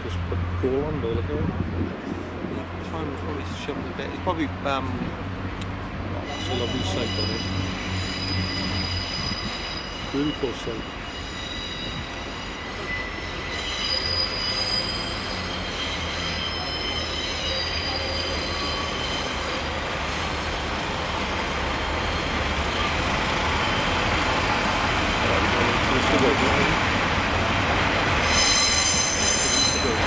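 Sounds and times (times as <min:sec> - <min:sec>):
train rumbling: 0:00.0 - 0:30.0
train wheels squealing: 0:06.2 - 0:26.8, 0:27.9 - 0:30.0.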